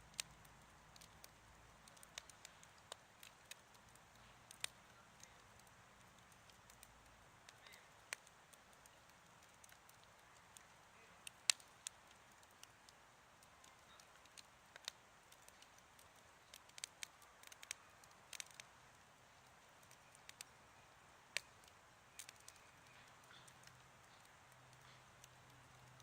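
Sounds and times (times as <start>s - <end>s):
campfire crackling: 0.0s - 26.0s.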